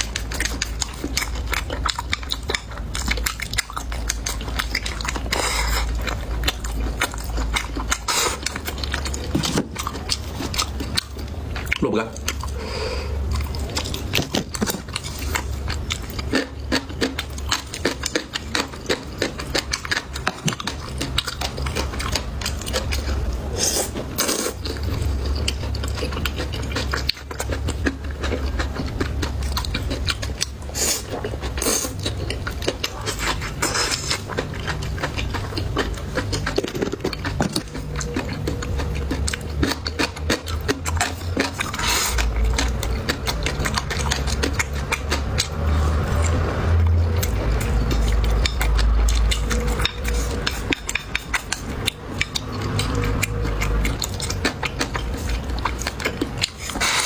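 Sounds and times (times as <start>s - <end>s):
chewing crunchy food: 0.0s - 57.0s
steady low hum: 0.0s - 57.0s.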